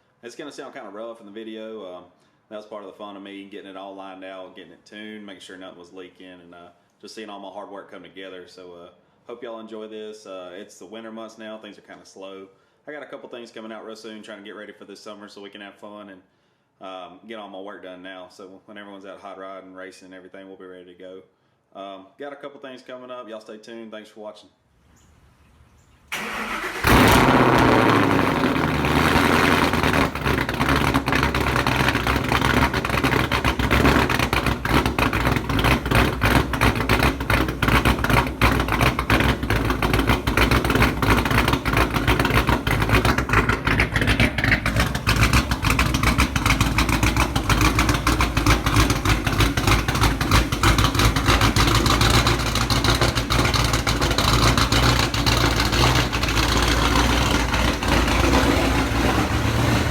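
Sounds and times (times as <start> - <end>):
car engine starting and idling: 26.1 - 59.9.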